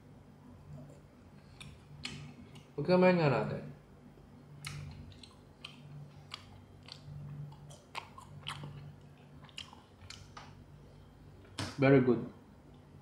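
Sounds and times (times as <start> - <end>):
steady low hum: 0.0 - 13.0
person chewing crunchy food: 1.4 - 2.8, 4.6 - 10.7.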